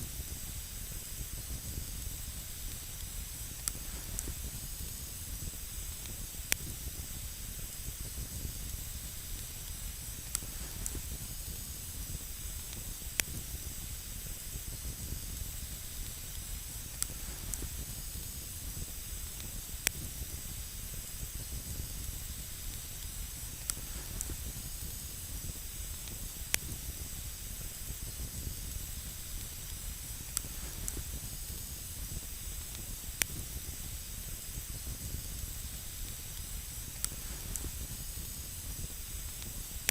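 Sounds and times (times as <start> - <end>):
campfire hissing: 0.0 - 39.9
fire crackles and pops: 0.0 - 39.9.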